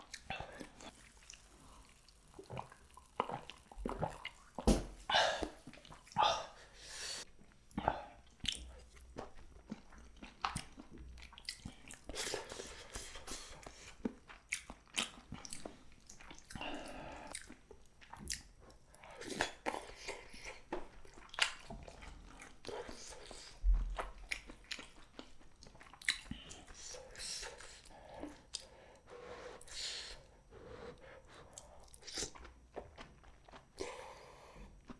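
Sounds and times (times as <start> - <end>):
biting and wet chewing: 0.0 - 6.5, 7.4 - 34.9
mouth clicks: 7.8 - 18.5.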